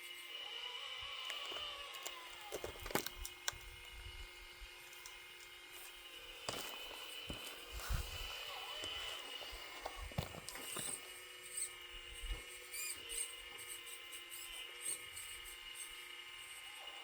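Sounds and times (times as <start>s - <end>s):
small electric motors whining: 0.0s - 17.0s
metal parts clicking and squeaking: 1.2s - 3.8s, 8.4s - 16.6s.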